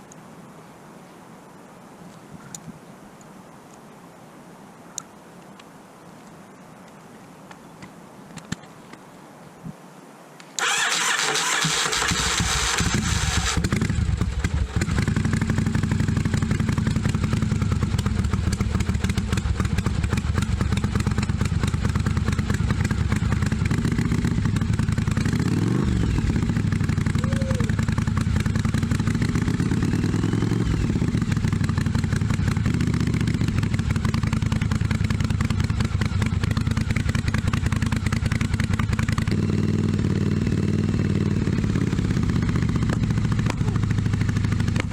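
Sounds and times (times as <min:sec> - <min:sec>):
motorcycle engine starting and running: 0:10.6 - 0:44.9.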